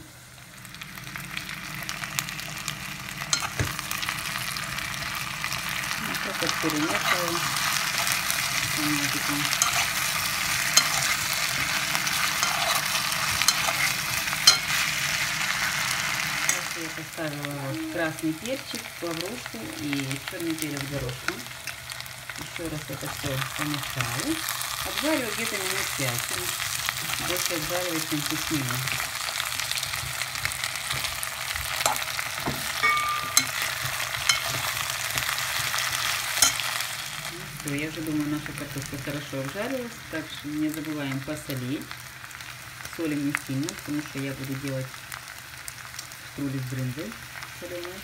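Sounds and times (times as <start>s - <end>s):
potatoes and onion sizzling: 0.0s - 48.0s
metal spoon scraping a pot: 9.4s - 14.8s, 32.8s - 34.7s.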